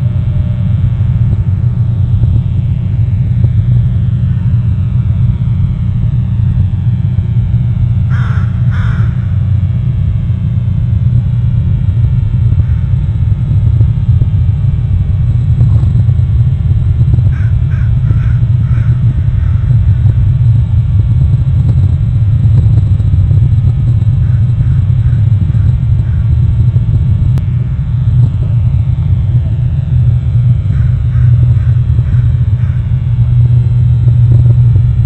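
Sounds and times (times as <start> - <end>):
steady low rumble: 0.0 - 35.0
bird harsh calls: 8.1 - 9.3, 17.3 - 19.7.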